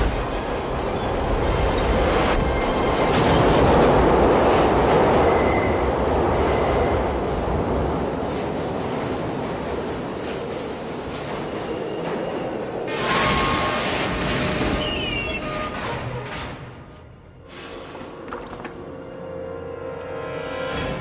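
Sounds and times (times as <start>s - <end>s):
train wheels squealing: 0.0s - 3.2s, 5.2s - 16.2s
subway train rushing: 0.0s - 21.0s.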